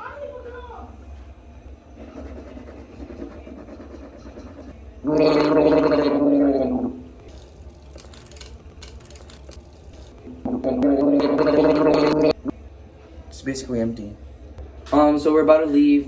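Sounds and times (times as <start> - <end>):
person gargling: 5.1 - 7.0, 10.5 - 12.5.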